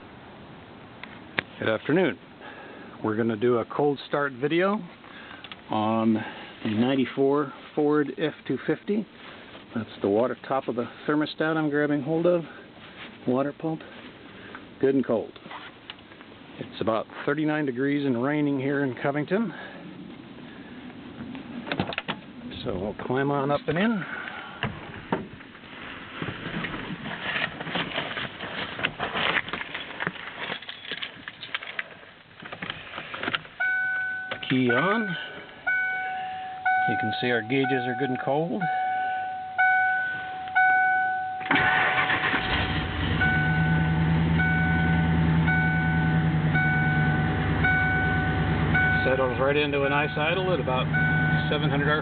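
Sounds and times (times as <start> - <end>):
rustling: 12.8 - 14.6, 15.4 - 16.3, 24.8 - 33.6
door chime dinging: 33.6 - 41.5
truck engine cranking and idling: 39.6 - 52.0.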